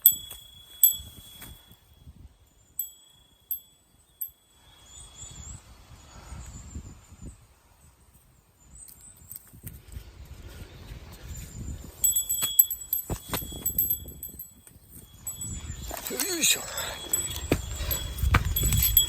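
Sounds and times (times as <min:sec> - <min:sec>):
small metal bell ringing: 0:00.0 - 0:04.8, 0:12.0 - 0:19.0.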